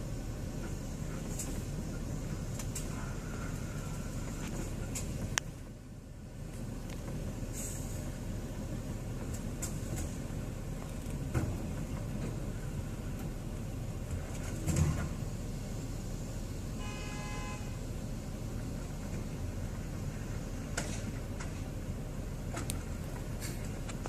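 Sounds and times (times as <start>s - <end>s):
road traffic rumble: 0.0s - 24.0s
vehicle horn honk: 16.8s - 17.8s.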